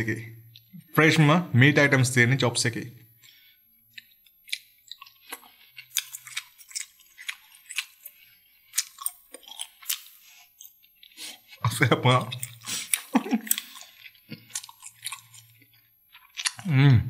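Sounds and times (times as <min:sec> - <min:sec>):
wet mouth clicks and smacks: 0:03.2 - 0:11.4, 0:12.2 - 0:16.7.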